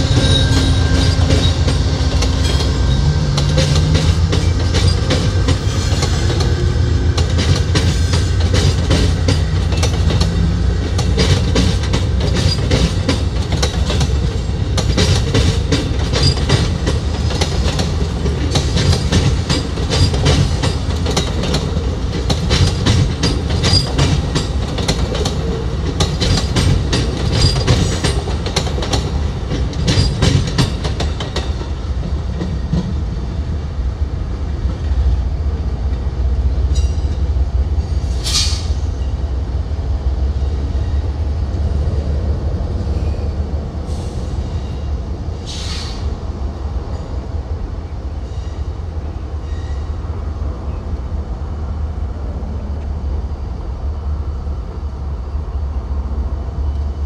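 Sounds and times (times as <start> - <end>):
train wheels clacking over rail joints: 0.0 - 33.1
low rumble of train cars: 0.0 - 57.0.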